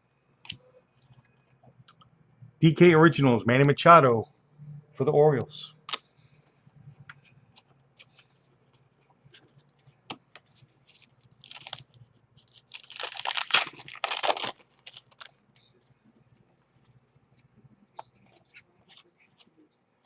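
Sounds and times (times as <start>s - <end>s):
wrapper tearing and crinkling: 11.4s - 15.4s.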